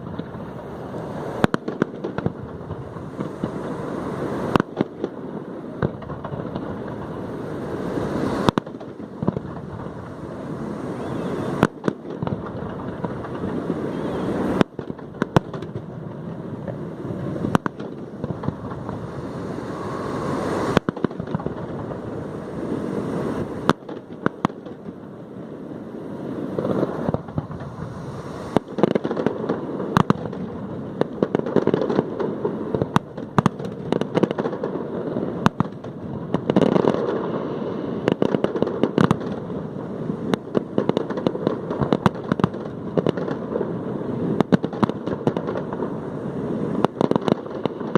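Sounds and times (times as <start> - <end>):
rushing crackle of fireworks: 0.0 - 47.9
firework shells bursting: 17.4 - 22.3.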